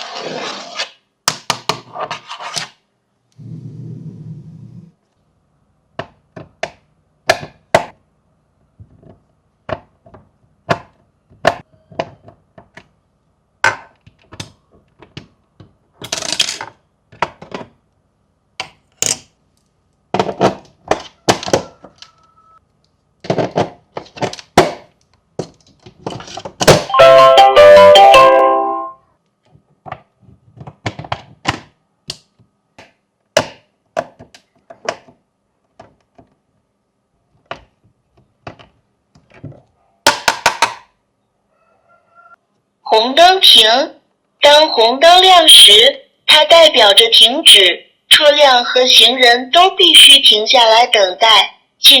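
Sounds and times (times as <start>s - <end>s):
chiming tune: 26.9s - 29.0s.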